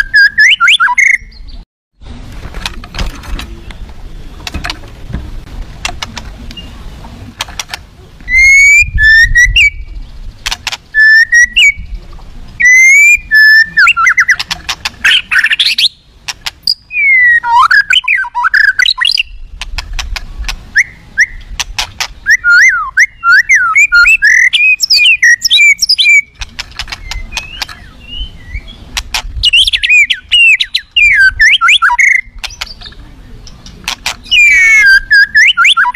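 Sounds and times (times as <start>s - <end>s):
songbird whistling and warbling: 0.0s - 1.6s, 6.5s - 6.9s, 8.2s - 10.0s, 10.9s - 12.0s, 12.6s - 19.6s, 20.7s - 21.6s, 22.2s - 35.9s
bird sharp clicking notes: 10.4s - 11.7s, 13.0s - 16.8s, 17.4s - 28.0s, 28.9s - 35.9s.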